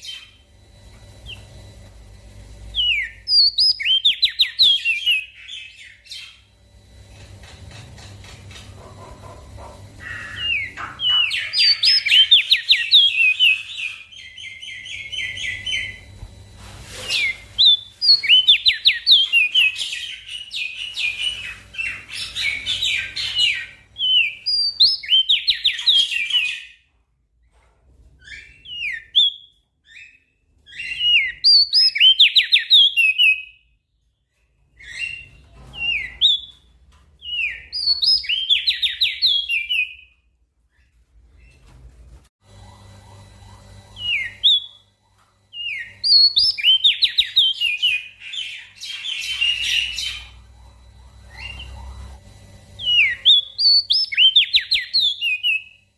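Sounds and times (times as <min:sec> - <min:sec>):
faint low hum: 0:33.4 - 0:55.9.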